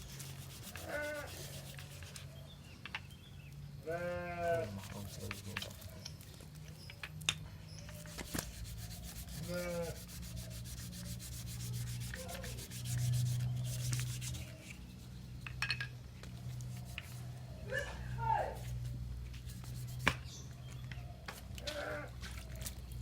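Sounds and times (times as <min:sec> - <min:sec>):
rapid rhythmic rubbing strokes: 0:00.0 - 0:02.3, 0:04.7 - 0:06.0, 0:07.9 - 0:15.5, 0:16.4 - 0:17.5, 0:18.5 - 0:20.2.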